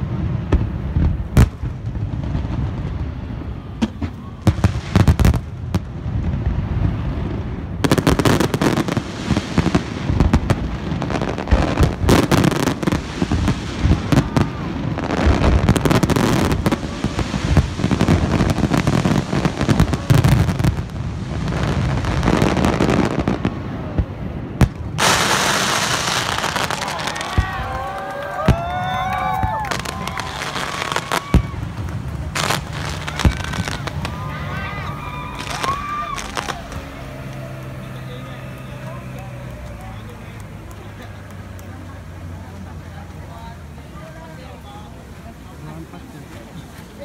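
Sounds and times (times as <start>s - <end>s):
firework bangs and thumps: 0.0s - 41.8s
firework crackling: 0.0s - 47.0s
loud hiss: 24.8s - 27.4s.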